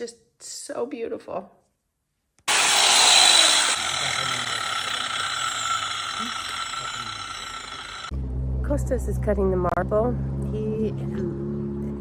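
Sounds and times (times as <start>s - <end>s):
stone cutter cutting marble: 2.5s - 8.1s.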